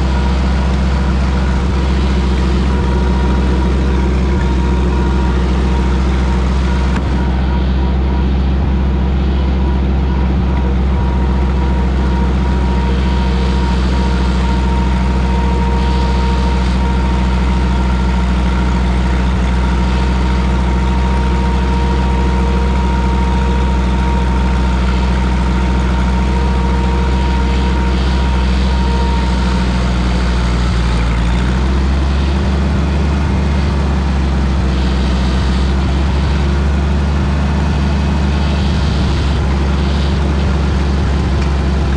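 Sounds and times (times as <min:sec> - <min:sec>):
faint high whine: 0:00.0 - 0:41.9
tractor engine running: 0:00.0 - 0:41.9.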